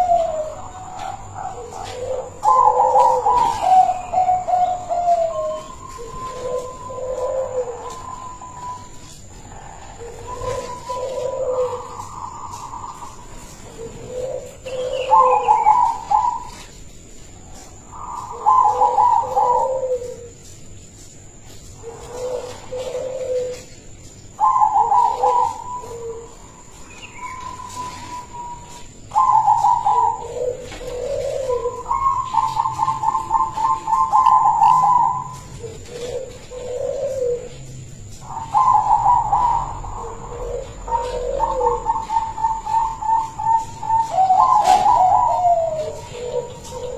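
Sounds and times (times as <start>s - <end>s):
dove cooing: 0.0s - 46.9s.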